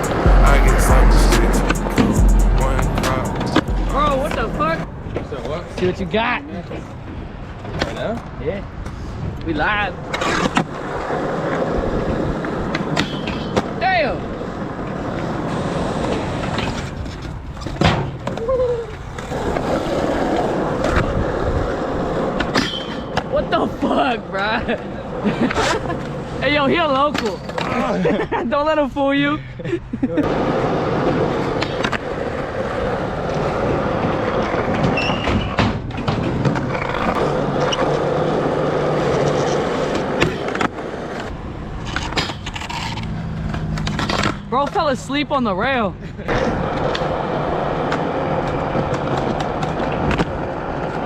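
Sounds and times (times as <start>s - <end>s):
skateboard rolling over concrete: 10.0s - 28.0s, 30.2s - 44.8s, 46.3s - 51.0s
skateboard clacking: 46.3s - 51.0s.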